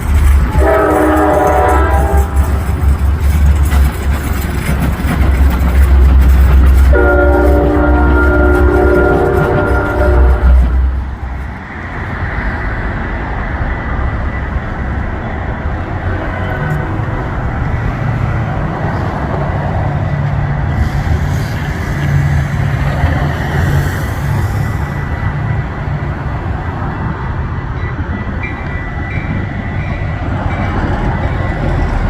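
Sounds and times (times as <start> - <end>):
train rolling by: 0.0 - 32.0
train horn blast: 0.5 - 2.6, 6.9 - 11.0.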